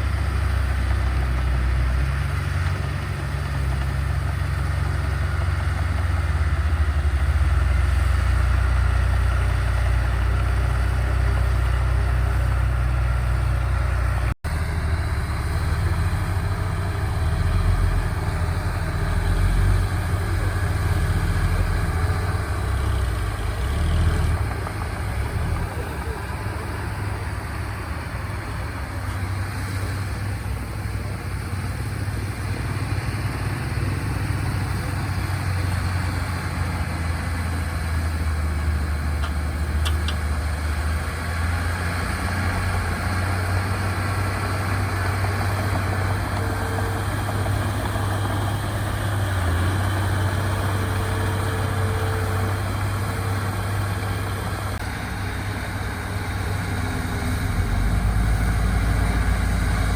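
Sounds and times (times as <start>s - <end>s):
deeper engine note: 0.0s - 59.9s
heavy diesel engines rumbling: 0.0s - 59.9s.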